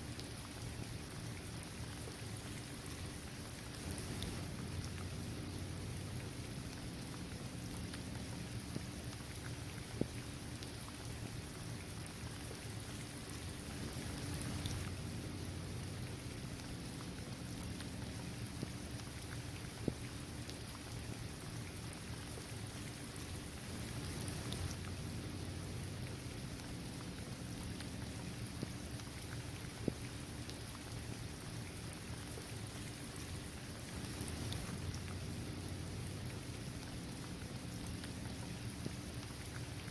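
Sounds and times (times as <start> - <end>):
rain on hard surface: 0.0 - 39.9
raindrops ticking: 13.8 - 22.4, 23.1 - 39.8.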